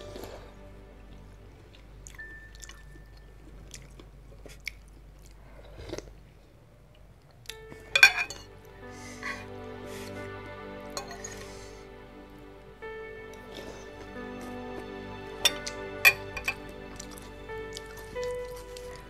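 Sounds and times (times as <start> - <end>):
close-up chewing: 1.7 - 6.4.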